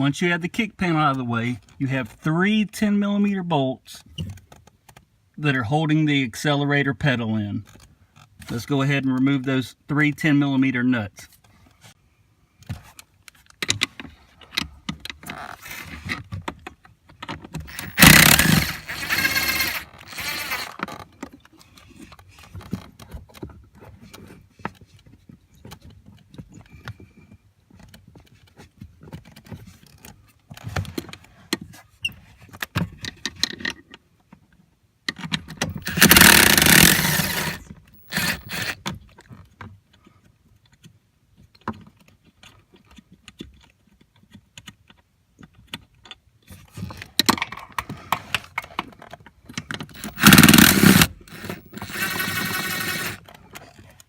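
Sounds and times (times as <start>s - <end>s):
ratchet wrench turning: 17.7s - 20.9s, 35.7s - 38.8s, 50.0s - 53.2s
handling clicks and knocks: 49.5s - 53.5s.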